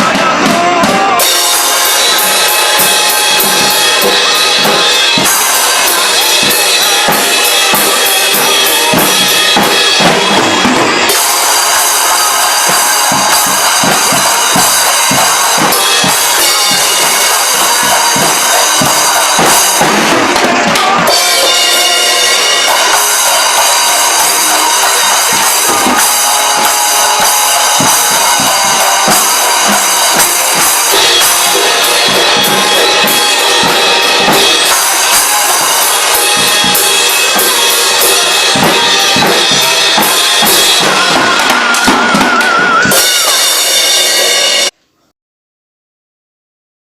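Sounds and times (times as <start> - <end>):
drum kit playing: 0.0 - 44.8
rock song recording: 0.0 - 44.8.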